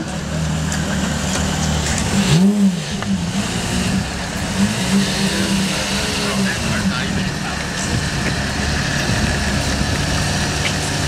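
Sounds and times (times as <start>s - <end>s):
sports car engine idling: 5.4s - 11.0s.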